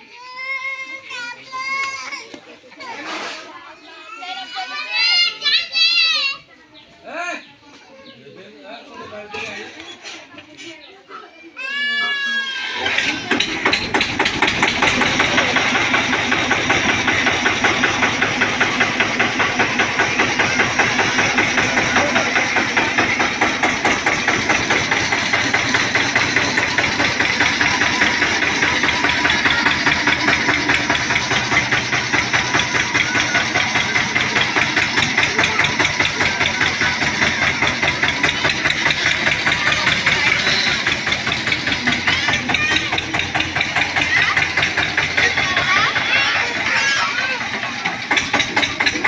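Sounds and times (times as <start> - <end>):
tractor diesel engine running: 12.7 - 49.0.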